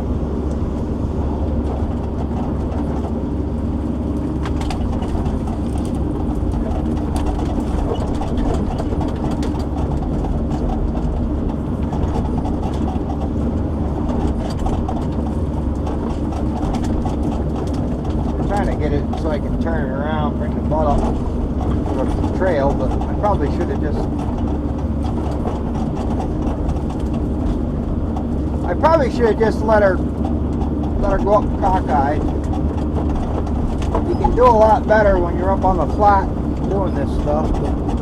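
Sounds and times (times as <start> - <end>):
diesel engine droning: 0.0 - 38.0.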